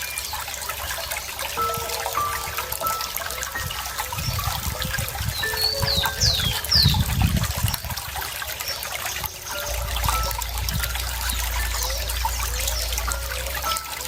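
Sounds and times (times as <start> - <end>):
small birds calling: 0.0 - 7.4, 8.0 - 14.0
water trickling: 0.0 - 14.0
high downward-sweeping chirps: 1.6 - 6.7.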